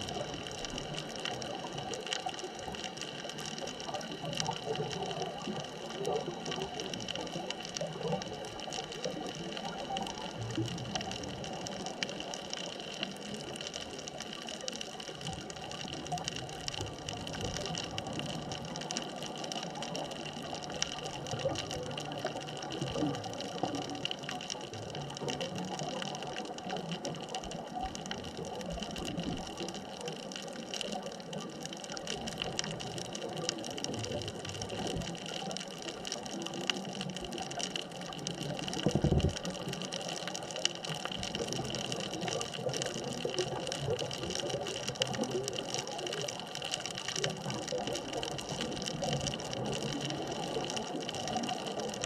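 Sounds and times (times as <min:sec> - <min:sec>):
fine crackle of tiny clicks: 0:00.0 - 0:52.0
bubbling surge: 0:38.7 - 0:39.9.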